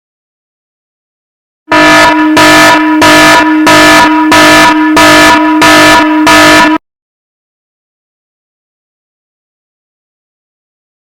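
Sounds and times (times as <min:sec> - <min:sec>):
pulsing horn-like buzzing tone: 0:01.7 - 0:06.8.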